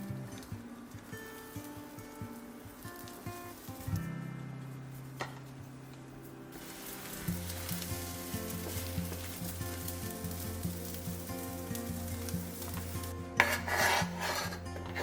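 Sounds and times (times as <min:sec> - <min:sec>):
soft background music: 0:00.0 - 0:15.0
pancake sizzling in oil: 0:06.5 - 0:14.6.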